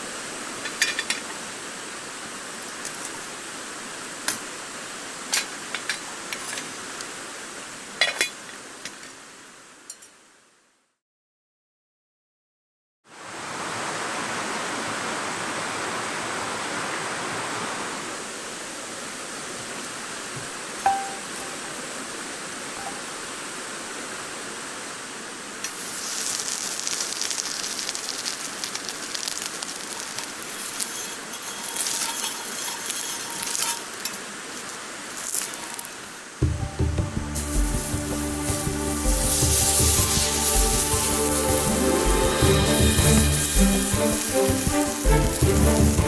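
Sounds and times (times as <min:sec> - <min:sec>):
steady hiss: 0:18.0 - 0:46.0
fat crackling and sizzling: 0:25.6 - 0:36.4, 0:37.3 - 0:46.0
metallic clink: 0:30.0 - 0:34.2.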